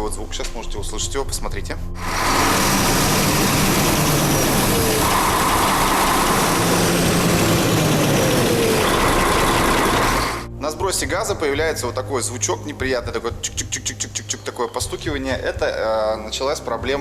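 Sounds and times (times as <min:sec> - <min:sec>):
diesel truck engine running: 0:02.0 - 0:10.5
engine ticking knock: 0:02.2 - 0:10.5.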